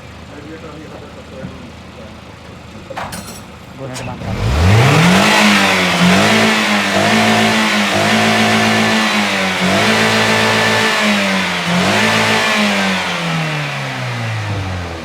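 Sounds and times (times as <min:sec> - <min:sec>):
car engine revving: 0:04.0 - 0:15.0.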